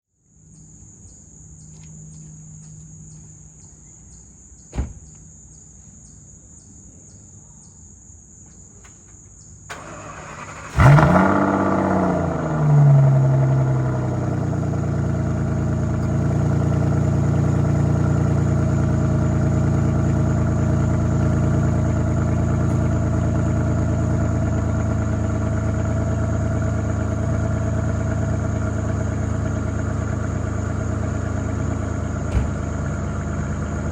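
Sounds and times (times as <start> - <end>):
car engine cranking and idling: 9.6 - 33.9.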